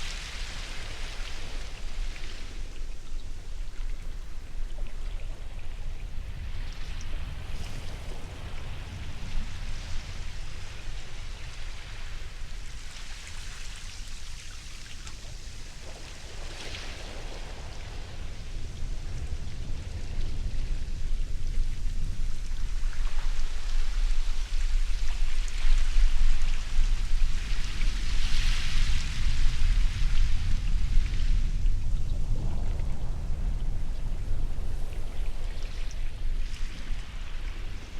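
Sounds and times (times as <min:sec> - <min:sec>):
low surf rumble: 0:15.2 - 0:37.9.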